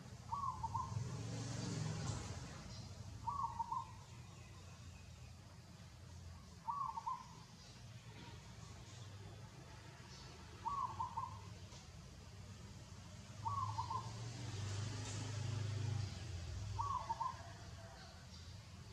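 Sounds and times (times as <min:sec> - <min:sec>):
bird calling: 0:00.2 - 0:01.1, 0:02.7 - 0:04.7, 0:06.4 - 0:07.8, 0:10.1 - 0:11.7, 0:13.4 - 0:14.4, 0:16.7 - 0:18.2.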